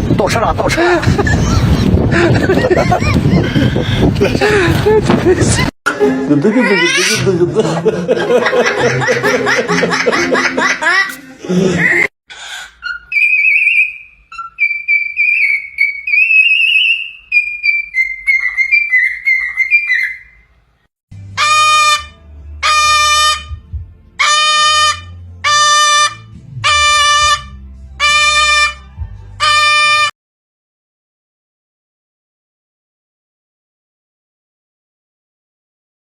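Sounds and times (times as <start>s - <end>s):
parrot whistling a warbling tune: 12.7s - 20.5s.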